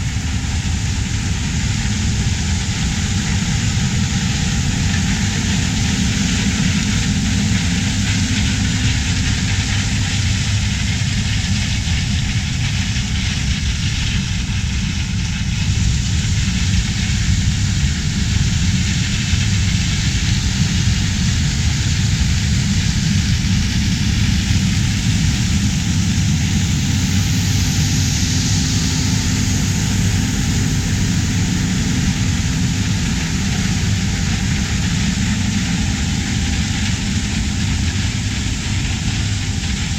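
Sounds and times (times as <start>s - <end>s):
farm machinery engines rumbling: 0.0s - 39.9s
broad hiss: 12.8s - 39.9s.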